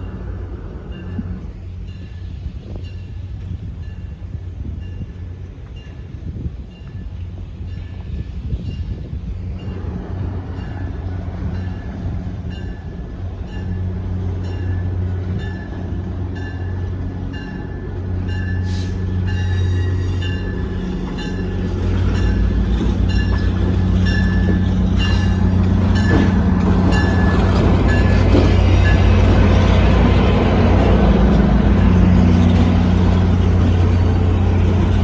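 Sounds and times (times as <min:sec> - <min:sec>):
train engine rumble: 0:00.0 - 0:35.0.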